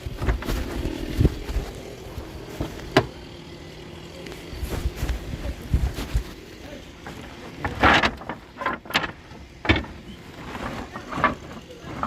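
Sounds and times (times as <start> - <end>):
wood knocking and clattering: 7.0 - 12.0.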